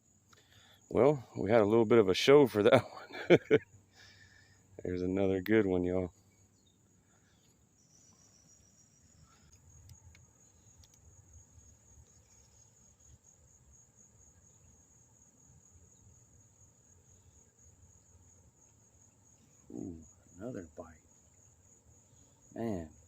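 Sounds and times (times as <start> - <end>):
insect chorus chirring: 0.0 - 23.0
faint clicks: 9.3 - 11.1.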